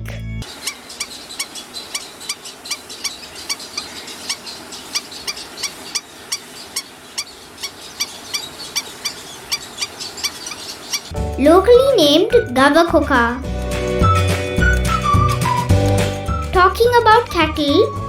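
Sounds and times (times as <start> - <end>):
egret calls: 0.4 - 11.1.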